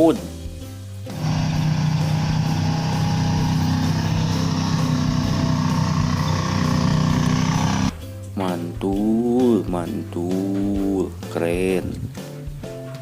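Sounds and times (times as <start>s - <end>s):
motor humming: 1.1s - 7.9s.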